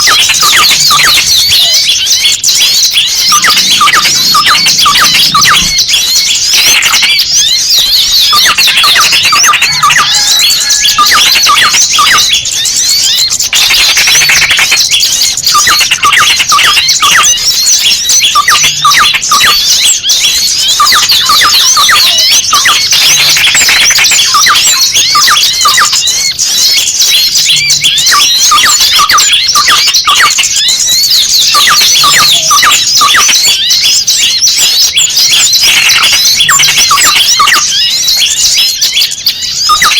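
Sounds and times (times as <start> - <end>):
bird distress cries: 0.0 - 39.9
songbirds chirping frantically: 0.0 - 39.9.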